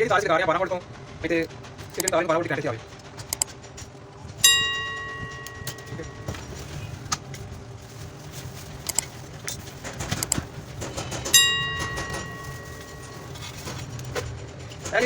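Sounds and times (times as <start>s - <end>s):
low steady hum: 0.0s - 15.0s
handling clicks and taps: 3.2s - 7.5s, 8.8s - 15.0s
ringing metallic strike: 4.4s - 6.5s, 11.3s - 13.3s.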